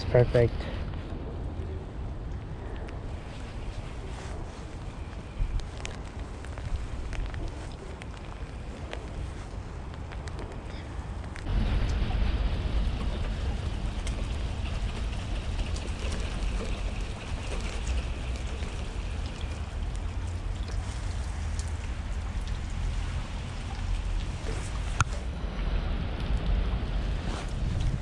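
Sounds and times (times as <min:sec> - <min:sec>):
rain falling: 0:00.0 - 0:28.0
wind rumble on microphone: 0:00.0 - 0:28.0
raindrop ticks: 0:01.0 - 0:28.0.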